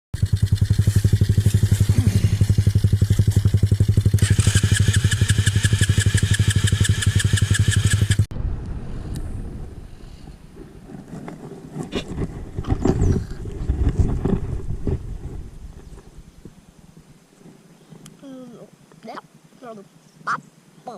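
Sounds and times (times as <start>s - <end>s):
high ticking and whine: 0.2s - 8.3s
small motorcycle engine idling: 0.2s - 8.3s.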